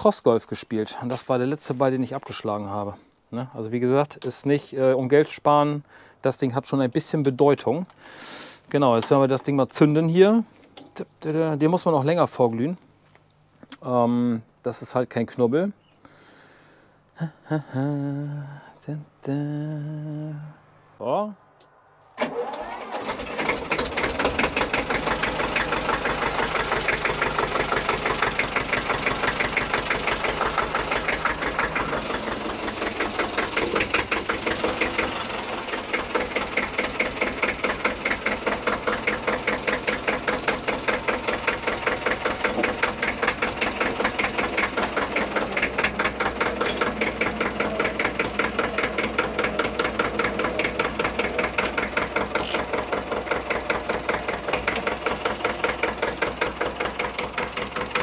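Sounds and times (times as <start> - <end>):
tractor diesel engine starting: 7.8 - 12.1, 22.1 - 58.0
diesel engine idling chugging: 22.5 - 58.0.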